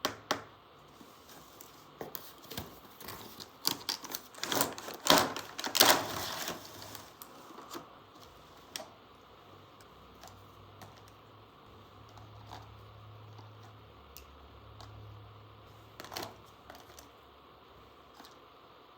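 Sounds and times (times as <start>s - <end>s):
packaging rustling: 0.8s - 8.9s.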